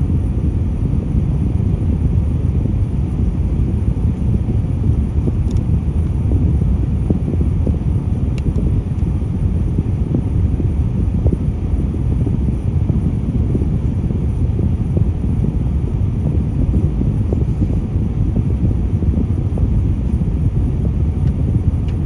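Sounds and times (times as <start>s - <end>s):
diesel engine rumble: 0.0s - 22.0s
wind buffeting microphone: 0.0s - 22.0s.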